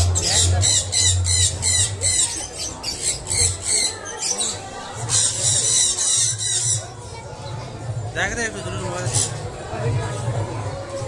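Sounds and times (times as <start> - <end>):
caged birds chirping and squawking: 0.0 - 7.8, 8.8 - 9.6.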